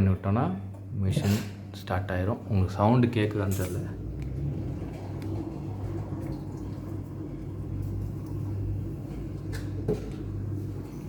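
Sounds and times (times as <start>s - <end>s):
dishwasher humming: 0.0s - 11.0s
water rushing: 4.0s - 11.0s.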